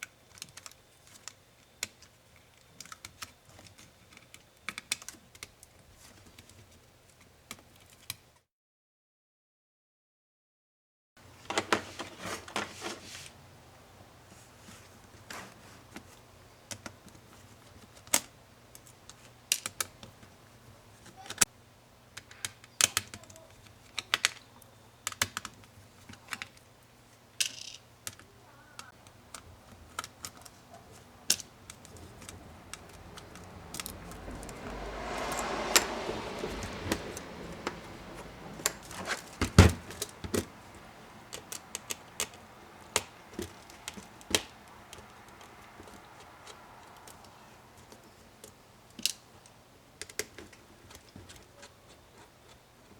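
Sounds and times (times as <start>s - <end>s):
scraping rustle: 11.4s - 13.4s, 14.2s - 16.3s, 30.4s - 40.9s.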